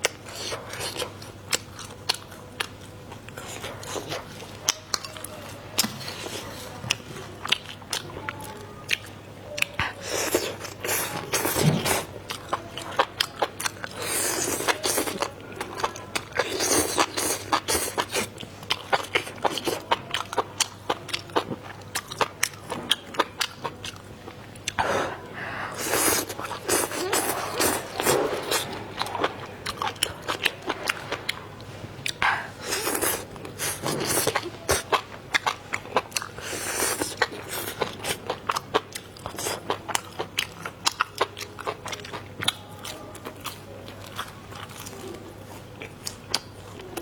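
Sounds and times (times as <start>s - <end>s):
crunchy chewing and biting: 25.8s - 31.4s, 32.0s - 47.0s.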